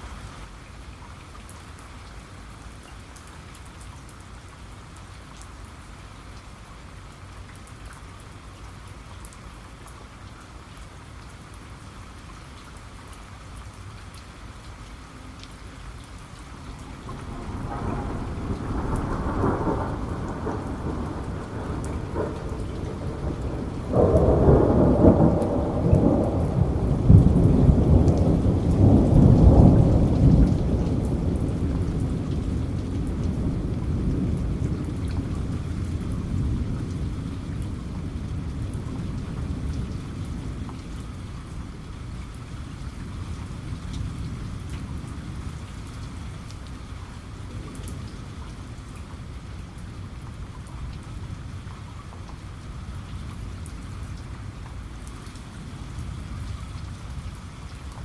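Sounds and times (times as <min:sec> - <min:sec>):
heavy rain: 0:00.0 - 0:58.0
thunder rumbling: 0:16.6 - 0:45.7.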